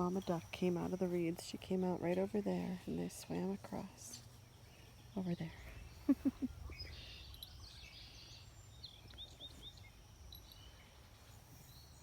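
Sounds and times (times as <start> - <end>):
bird chirps: 4.4 - 12.0.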